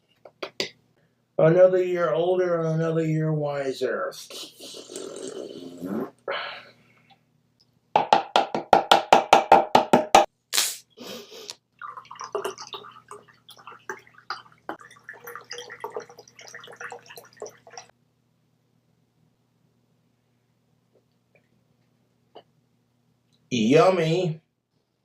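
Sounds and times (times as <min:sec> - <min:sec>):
wet gurgling mouth sounds: 0:04.6 - 0:06.2
short mouth hiss: 0:10.5 - 0:11.6.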